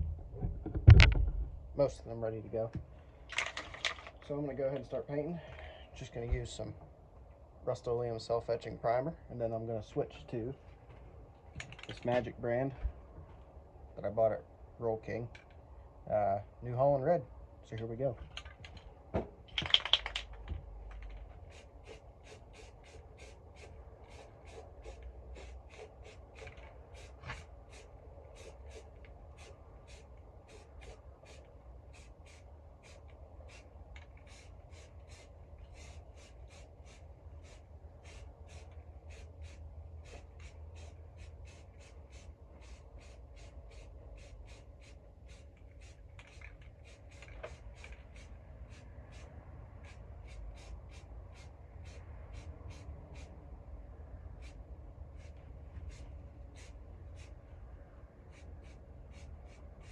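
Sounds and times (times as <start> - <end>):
aerosol can rattling: 3.3 - 4.3, 19.4 - 27.8, 28.4 - 49.2.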